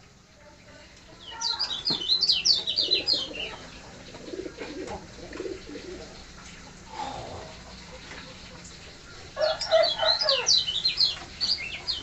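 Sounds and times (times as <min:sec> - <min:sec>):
lower chattering bird notes: 0:01.1 - 0:12.0
bird chirping: 0:01.2 - 0:04.5, 0:07.8 - 0:12.0.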